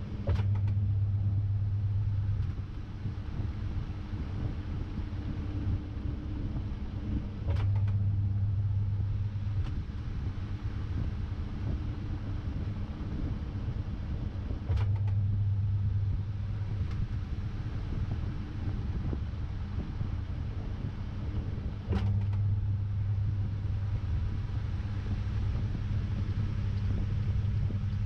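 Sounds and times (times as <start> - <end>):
motor hum: 0.0 - 28.0
washing machine rumble: 0.0 - 28.0
click: 0.3 - 0.8, 7.5 - 8.0, 14.7 - 15.2, 21.9 - 22.4.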